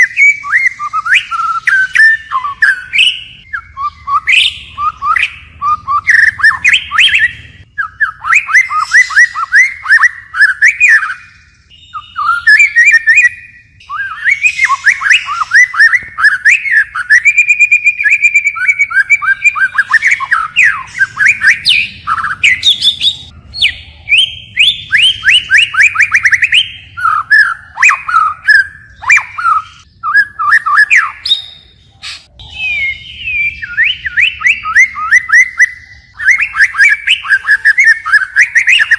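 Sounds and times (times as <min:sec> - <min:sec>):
songbird singing whistled trills: 0:00.0 - 0:38.9.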